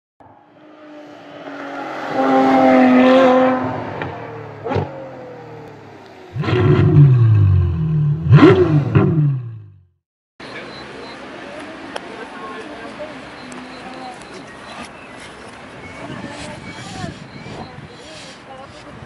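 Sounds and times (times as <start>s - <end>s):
car engine revving: 0.2s - 9.8s.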